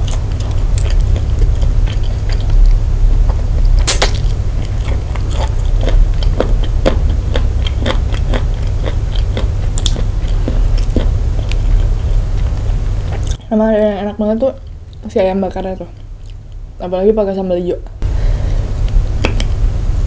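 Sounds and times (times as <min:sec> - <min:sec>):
person chewing: 0:00.0 - 0:13.5, 0:16.0 - 0:16.7
steady low hum: 0:00.0 - 0:20.0
wet mouth clicks: 0:03.8 - 0:04.3, 0:07.9 - 0:11.6.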